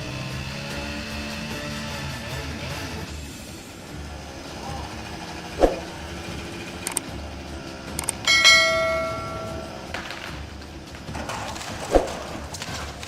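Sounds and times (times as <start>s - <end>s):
sharp clicks: 6.8s - 7.0s, 8.0s - 8.2s
ringing metallic strike: 8.2s - 9.9s.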